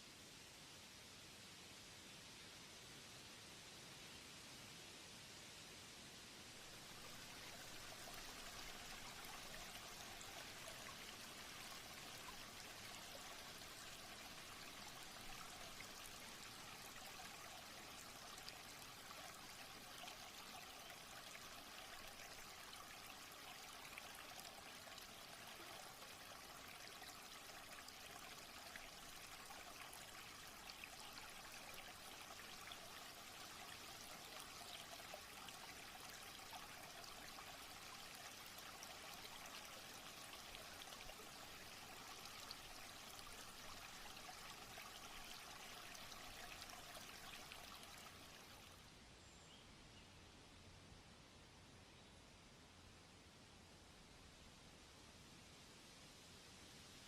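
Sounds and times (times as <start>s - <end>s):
faint running water: 6.4s - 49.6s.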